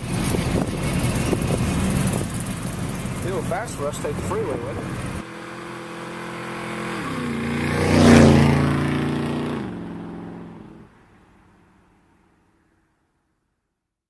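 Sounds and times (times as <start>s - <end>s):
car passing by: 0.0s - 12.7s.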